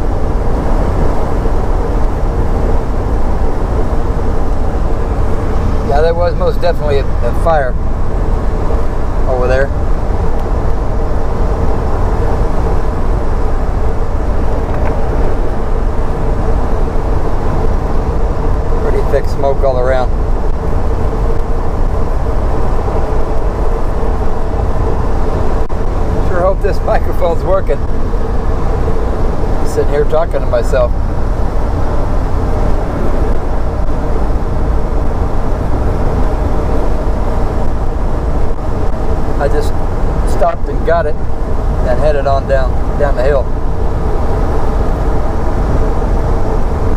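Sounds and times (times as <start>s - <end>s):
truck engine and road rumble: 0.0s - 46.9s.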